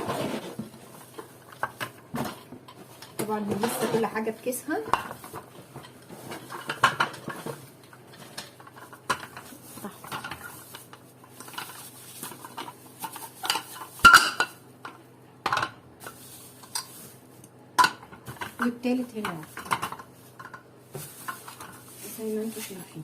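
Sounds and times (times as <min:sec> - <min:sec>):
plastic bags rustling: 0:00.0 - 0:15.2, 0:16.0 - 0:23.0
kitchen utensils clinking and knocking: 0:01.1 - 0:17.0, 0:17.8 - 0:22.8.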